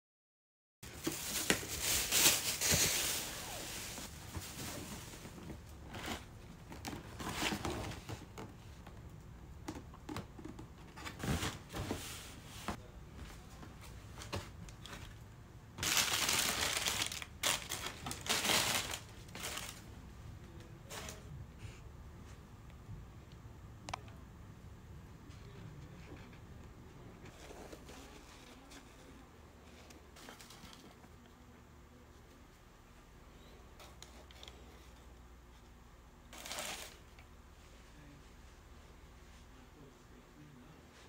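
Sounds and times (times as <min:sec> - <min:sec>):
paper packaging crinkling: 0:15.8 - 0:19.9, 0:36.3 - 0:37.0.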